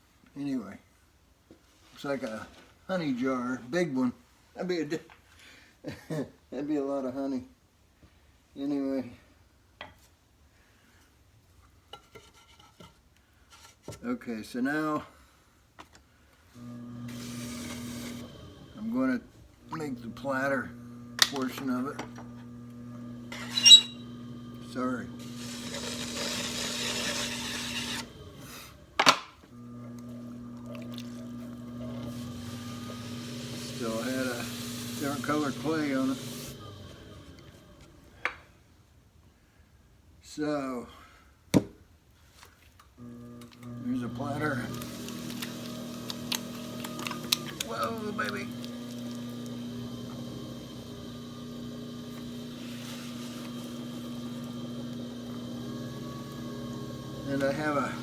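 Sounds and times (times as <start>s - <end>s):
potter's wheel humming: 16.6s - 38.3s, 43.0s - 58.0s.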